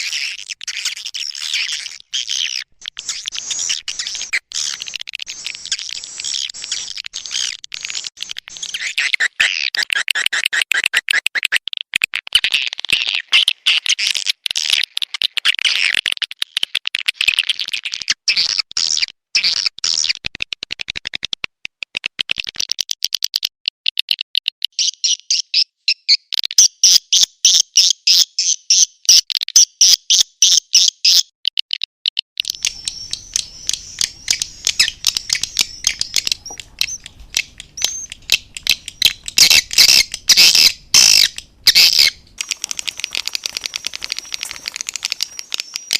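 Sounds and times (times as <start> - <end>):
swiftlets chirping and twittering: 0.0 - 9.6, 32.4 - 45.9.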